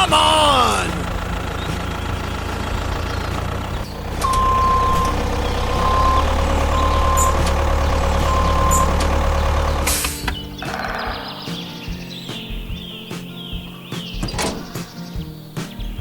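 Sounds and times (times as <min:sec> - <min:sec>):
truck engine running: 0:00.0 - 0:15.5
reversing beeper: 0:04.2 - 0:10.0.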